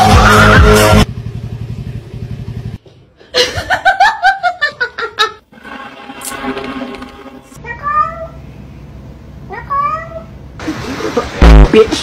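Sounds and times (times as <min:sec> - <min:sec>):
music: 0:00.0 - 0:01.1, 0:05.6 - 0:07.6
low motor-like drone: 0:05.5 - 0:07.6.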